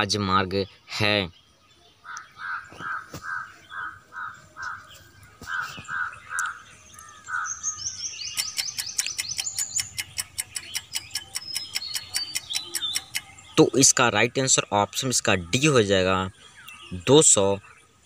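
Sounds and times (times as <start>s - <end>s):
high bird chirps: 0.0s - 18.0s
birds cawing: 1.9s - 18.0s
fast even ticking: 8.3s - 13.3s.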